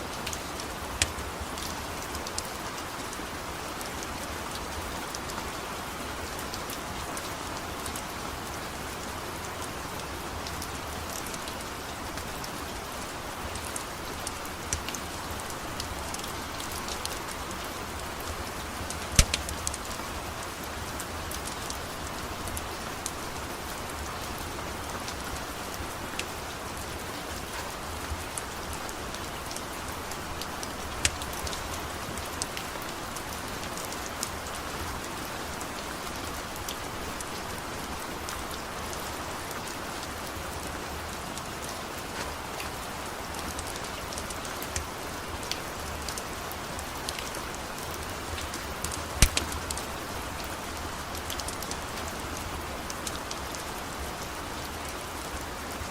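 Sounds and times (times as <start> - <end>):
steady rain falling: 0.0 - 55.9
sharp pops or clicks: 19.1 - 19.8, 31.0 - 31.6, 48.8 - 49.8.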